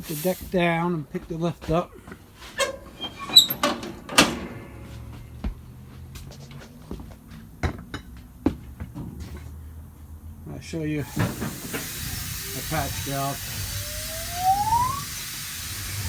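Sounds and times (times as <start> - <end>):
short squeak: 2.6 - 3.7.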